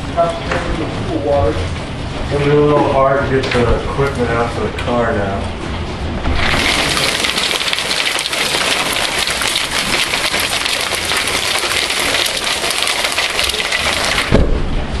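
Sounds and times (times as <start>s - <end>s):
hail pelting down: 6.4s - 14.4s
low thump: 14.3s - 14.8s.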